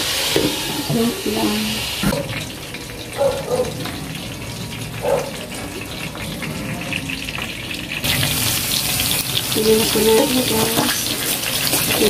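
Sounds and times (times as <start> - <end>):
chicken frying in covered pan: 0.0 - 12.0.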